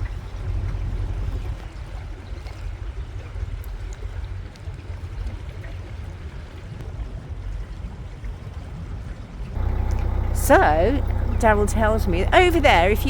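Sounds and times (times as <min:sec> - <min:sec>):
low engine rumble: 0:09.6 - 0:13.0.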